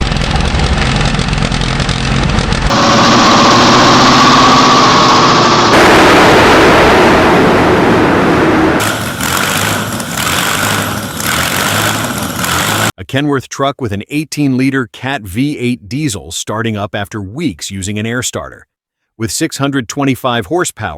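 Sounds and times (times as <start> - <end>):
engines starting and revving: 0.0 - 13.0.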